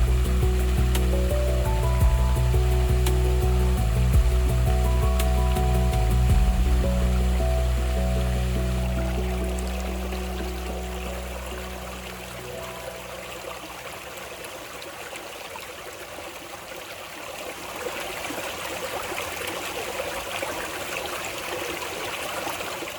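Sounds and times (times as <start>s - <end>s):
music track: 0.0s - 14.4s
waterfall and stream splashing: 0.0s - 22.9s.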